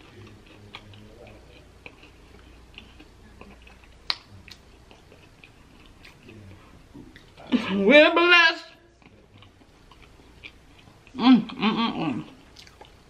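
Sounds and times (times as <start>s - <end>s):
chewing with wet mouth clicks: 0.0s - 7.4s, 9.0s - 11.2s, 12.2s - 13.0s.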